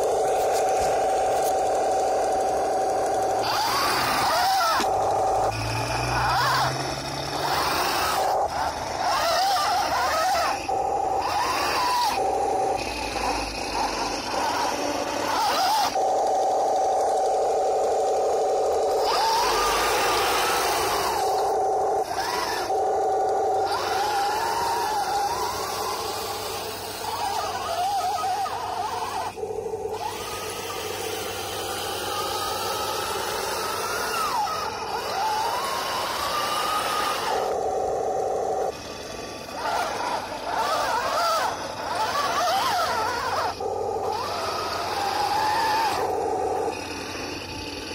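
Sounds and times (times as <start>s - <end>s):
electric motors whining: 0.0s - 47.9s
engine sound through small speaker: 0.0s - 47.9s
steady hum: 0.0s - 47.9s.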